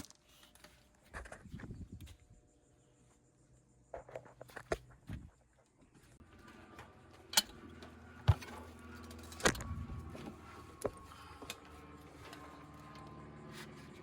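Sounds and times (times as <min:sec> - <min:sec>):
low machine hum: 0:05.0 - 0:14.0.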